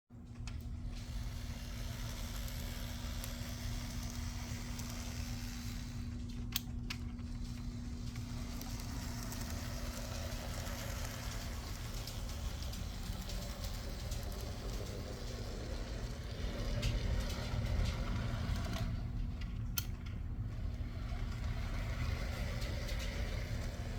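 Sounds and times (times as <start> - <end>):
small electric motor humming: 0.8 - 6.6, 7.4 - 19.2, 20.5 - 23.9
wheels rattling on rail: 7.3 - 23.9.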